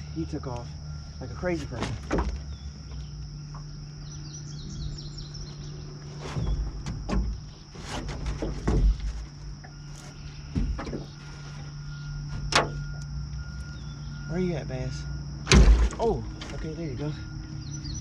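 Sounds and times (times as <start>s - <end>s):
low steady hum: 0.0s - 18.0s
knocks and thumps: 1.7s - 3.7s, 6.2s - 9.8s, 10.4s - 11.6s, 12.3s - 13.0s, 15.5s - 16.8s
bird chirps: 2.4s - 7.7s, 9.7s - 15.2s, 16.0s - 18.0s
high-pitched insect drone: 9.5s - 18.0s.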